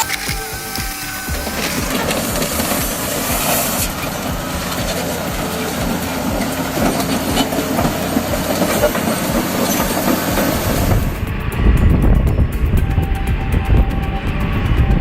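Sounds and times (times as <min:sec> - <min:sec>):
bulldozer tracks clattering: 0:00.0 - 0:11.8
deep loud rumble: 0:00.0 - 0:15.0.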